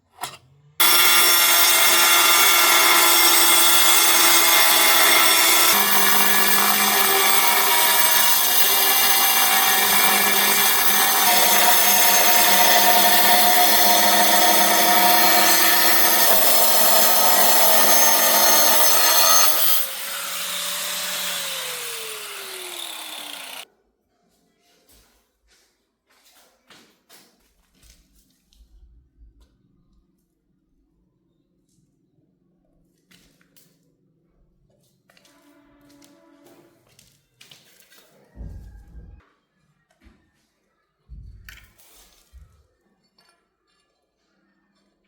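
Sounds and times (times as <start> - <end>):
electric power tool whining: 0.8 - 23.6
motor winding down: 0.8 - 23.6.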